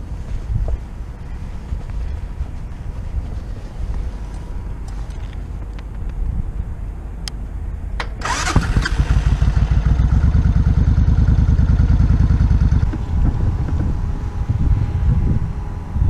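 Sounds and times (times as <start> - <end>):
motorcycle engine starting and running: 8.0 - 15.4.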